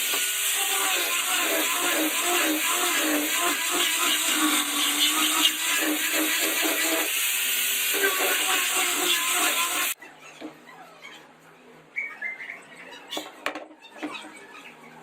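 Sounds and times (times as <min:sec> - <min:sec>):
electric woodworking tool running: 0:00.0 - 0:10.0.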